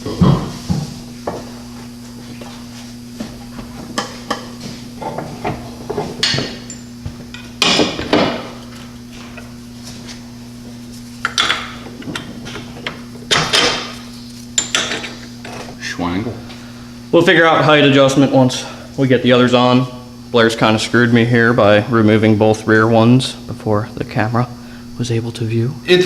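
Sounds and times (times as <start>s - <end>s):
steady low hum: 0.0s - 26.0s
hand tools clanking and knocking: 3.9s - 9.5s, 11.3s - 14.0s, 14.6s - 15.8s.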